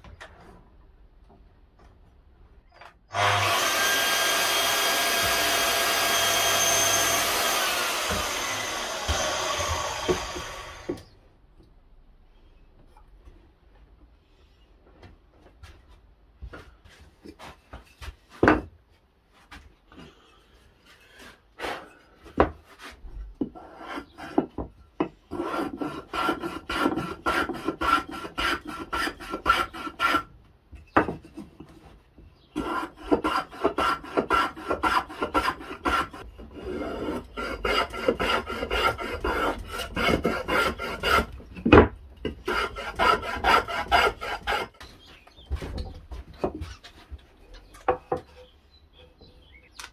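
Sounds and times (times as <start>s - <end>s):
abrasive tool scraping wood: 31.2s - 45.2s.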